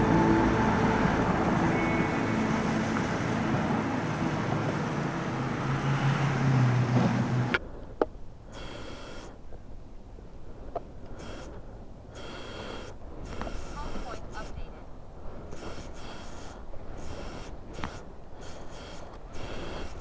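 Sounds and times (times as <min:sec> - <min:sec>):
car engine hum: 0:00.0 - 0:07.6
road noise: 0:00.0 - 0:07.7.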